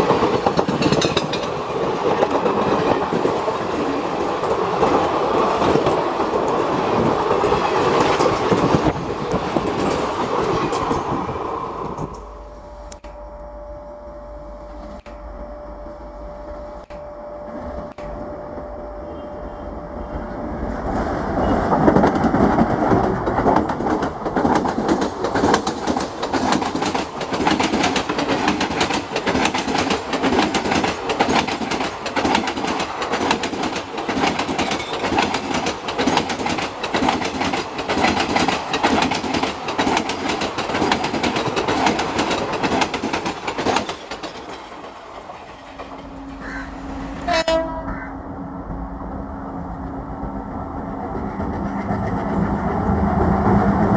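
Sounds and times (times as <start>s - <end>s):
train wheels clattering over rails: 0.0s - 12.3s, 20.9s - 47.6s
steady low tone: 11.9s - 21.5s.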